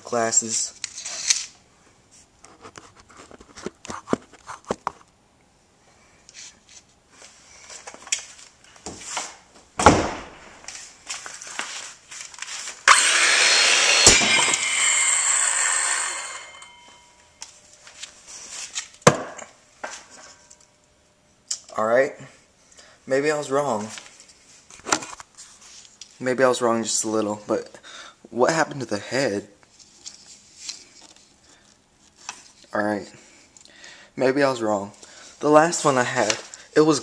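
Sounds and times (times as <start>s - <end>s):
sharp crack: 9.8s - 10.7s, 12.9s - 14.9s
circular saw cutting: 12.8s - 17.1s.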